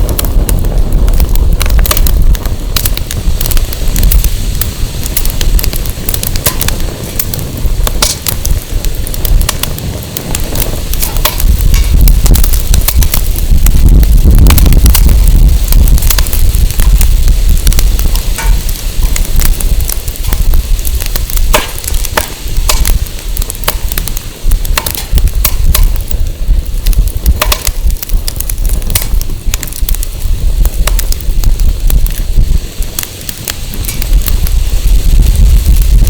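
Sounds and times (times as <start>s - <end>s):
wind rumble on microphone: 0.0s - 36.0s
wood fire crackling and popping: 0.0s - 36.0s.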